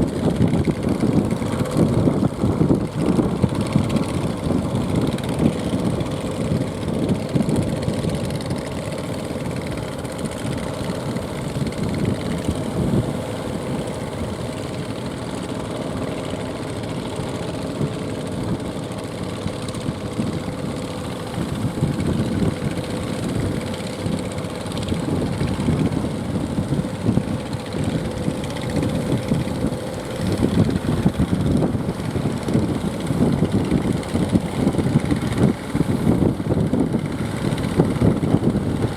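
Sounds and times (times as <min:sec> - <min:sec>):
boat engine droning: 0:00.0 - 0:38.9
wind buffeting the microphone: 0:00.0 - 0:38.9.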